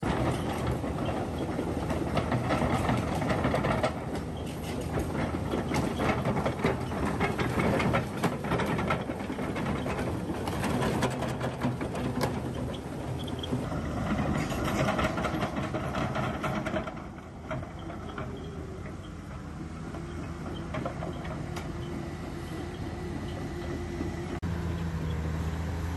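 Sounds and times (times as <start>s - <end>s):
rattle of clicks and clatter: 0.0s - 24.4s.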